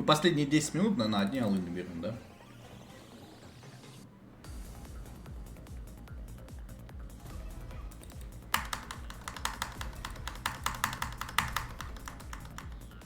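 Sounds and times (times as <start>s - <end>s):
electronic background music: 0.0s - 13.0s
rapid sharp clicking ticks: 8.0s - 13.0s.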